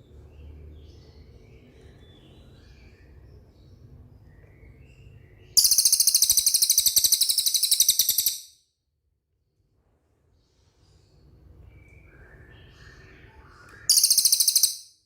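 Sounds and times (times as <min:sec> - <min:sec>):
faint bird chirps: 0:00.4 - 0:08.6, 0:10.4 - 0:15.0
bird high-pitched rapid trill: 0:05.6 - 0:08.6, 0:13.9 - 0:15.0.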